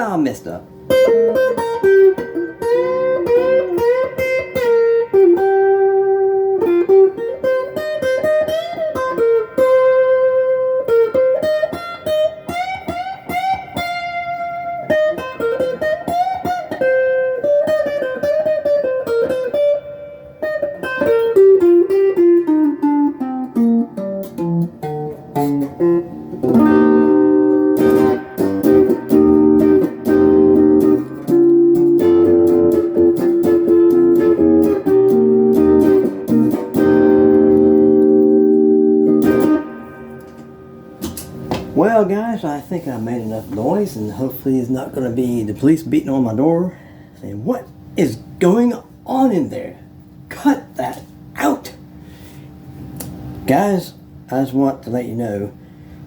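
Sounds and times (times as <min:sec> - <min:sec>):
overdriven electric guitar: 0:00.7 - 0:41.8.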